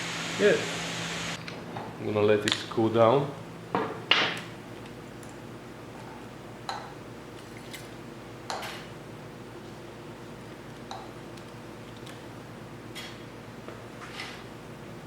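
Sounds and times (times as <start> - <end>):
cleaning tank electrical hum: 0.0 - 15.0.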